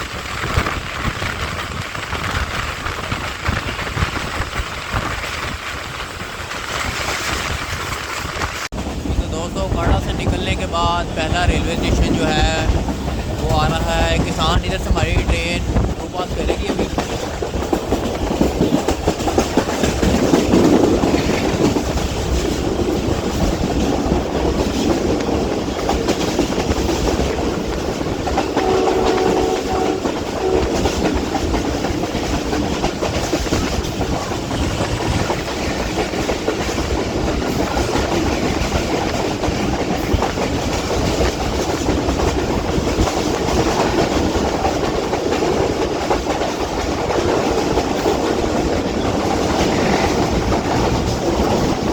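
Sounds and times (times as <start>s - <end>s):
train wheels clickety-clack: 0.0s - 51.9s
multi-pitch horn tone: 28.5s - 31.0s.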